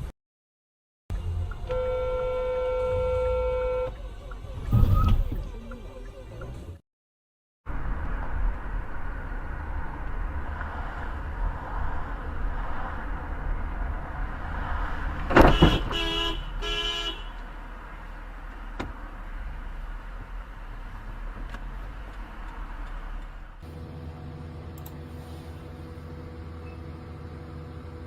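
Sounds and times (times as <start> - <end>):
car rumbling on road: 1.1 - 6.8, 7.7 - 28.0
car horn honks: 1.6 - 4.0, 15.4 - 17.4.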